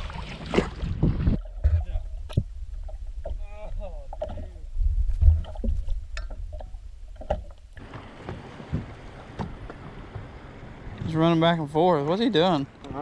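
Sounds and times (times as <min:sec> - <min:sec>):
wind rumble on microphone: 0:00.7 - 0:07.5
knocks and bumps on boat: 0:07.2 - 0:10.6.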